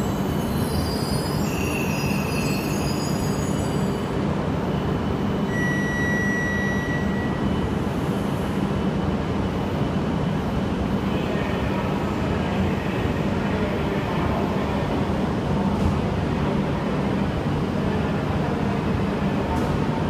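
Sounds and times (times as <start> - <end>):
high whine: 5.4 - 7.8.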